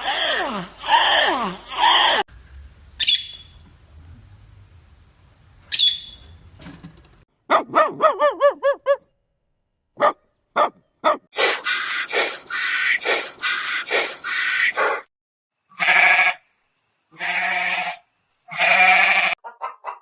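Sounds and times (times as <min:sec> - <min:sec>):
dog barking: 0:07.5 - 0:09.1, 0:10.0 - 0:11.3.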